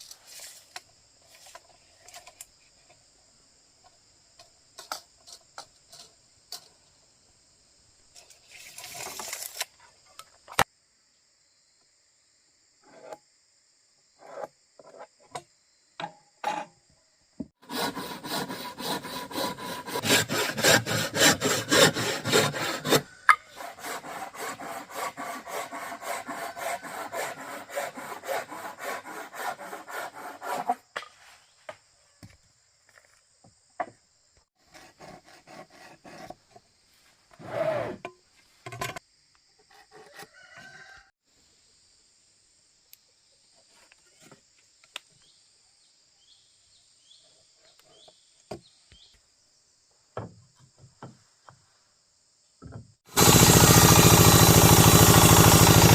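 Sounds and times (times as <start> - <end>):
insects droning: 0.0 - 53.0
hand tool sawing wood: 17.6 - 30.9, 34.6 - 36.6, 53.1 - 55.9
knocks and handling of wood: 50.2 - 51.6, 52.6 - 53.9.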